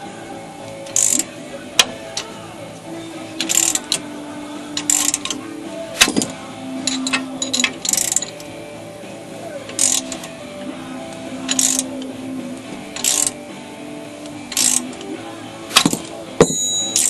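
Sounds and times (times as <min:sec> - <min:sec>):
ratchet wrench clicking: 0:00.9 - 0:02.3, 0:03.4 - 0:04.0, 0:04.8 - 0:05.4, 0:06.0 - 0:08.4, 0:09.7 - 0:10.3, 0:11.5 - 0:11.9, 0:13.0 - 0:13.4, 0:14.5 - 0:15.1, 0:15.8 - 0:17.0
sharp metal clinks: 0:06.0 - 0:08.4, 0:15.8 - 0:17.0.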